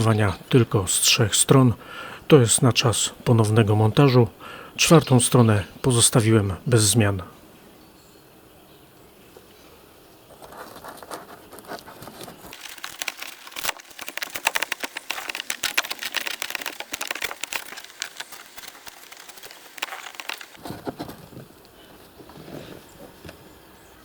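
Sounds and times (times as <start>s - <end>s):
material crinkling and crackling: 10.4s - 23.1s.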